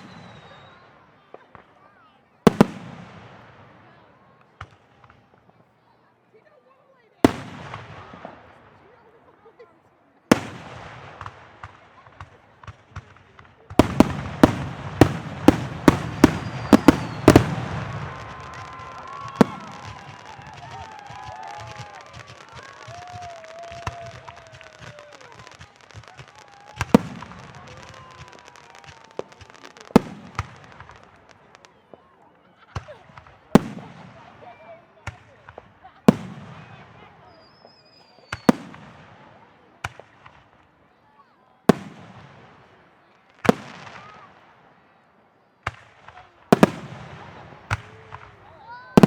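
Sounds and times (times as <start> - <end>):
faint long whistle: 0.0 - 1.0, 37.2 - 38.5
crackle of small fireworks: 0.0 - 49.0
fireworks booming: 10.3 - 32.1, 32.7 - 40.6, 45.6 - 49.0
fireworks shells bursting: 13.8 - 21.0.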